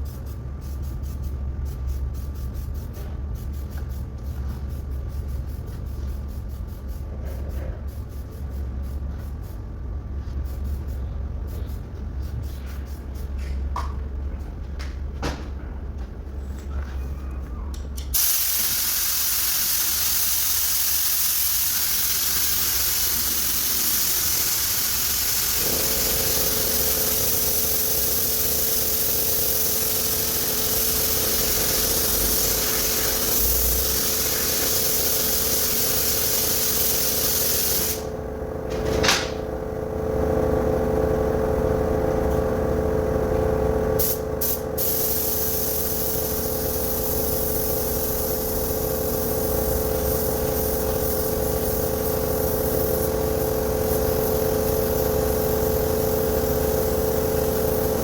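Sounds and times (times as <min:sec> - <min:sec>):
steady hum: 0:00.0 - 0:58.0
spray gun hissing: 0:18.1 - 0:38.1, 0:44.0 - 0:58.0.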